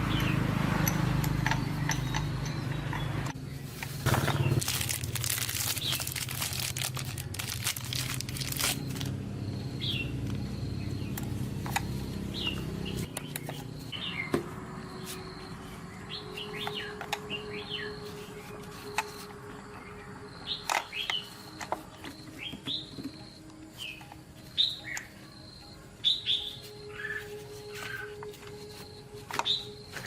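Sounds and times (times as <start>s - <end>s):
birds chirping: 0.0s - 30.0s
crinkling and rustling: 3.3s - 9.1s, 26.5s - 30.0s.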